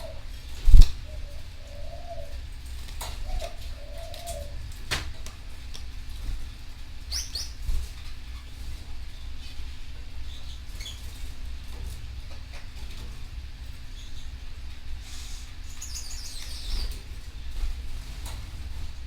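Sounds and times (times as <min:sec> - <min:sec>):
dove cooing: 0:00.0 - 0:04.9.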